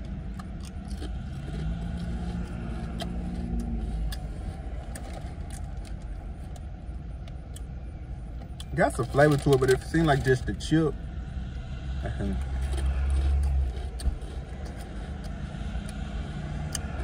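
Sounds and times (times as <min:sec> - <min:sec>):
low car rumble: 0:00.0 - 0:17.0
potato chip crunching: 0:00.1 - 0:05.9, 0:12.4 - 0:17.0.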